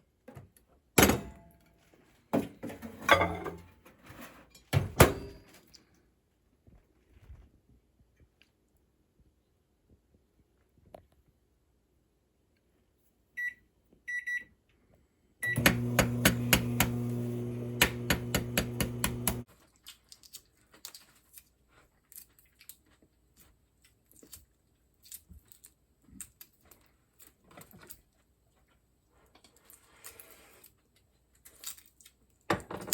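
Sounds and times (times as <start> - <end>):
appliance humming with rapid clicking: 15.4 - 19.4.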